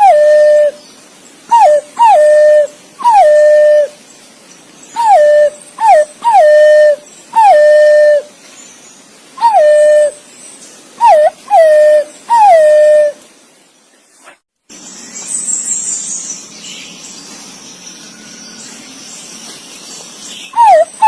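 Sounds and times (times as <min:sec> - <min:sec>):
pigeon whistled calls: 0:00.0 - 0:00.8, 0:01.5 - 0:03.9, 0:05.0 - 0:08.3, 0:09.4 - 0:10.2, 0:11.0 - 0:13.2, 0:20.5 - 0:21.0.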